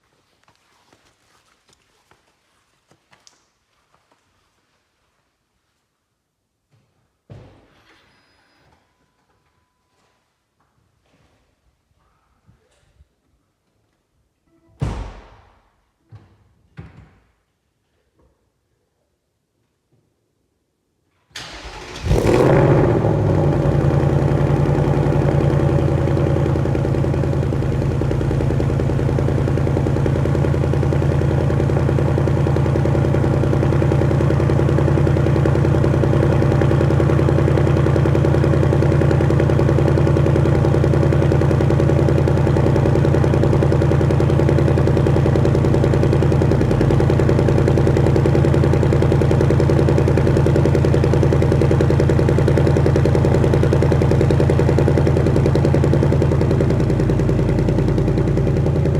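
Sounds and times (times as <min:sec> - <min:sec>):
car engine revving and idling: 0:21.7 - 0:58.9.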